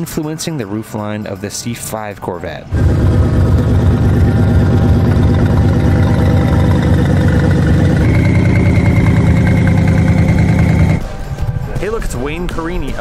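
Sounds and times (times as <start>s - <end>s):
steady high whine: 2.7s - 11.2s
car engine running low: 2.7s - 11.3s.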